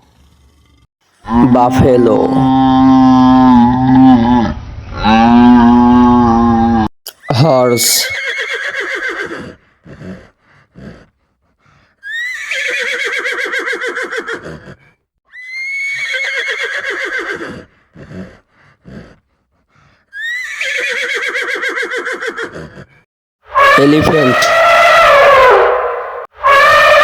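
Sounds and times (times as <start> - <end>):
horse whinnying: 7.6 - 11.1, 12.0 - 19.2, 20.2 - 22.9, 23.6 - 25.7.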